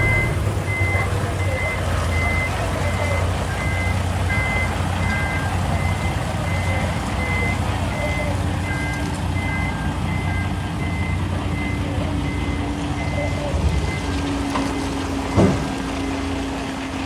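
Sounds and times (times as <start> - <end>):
lower-pitched beep: 0.0 - 4.6
reversing alarm beeping: 0.0 - 14.1
diesel engine running: 0.0 - 17.0.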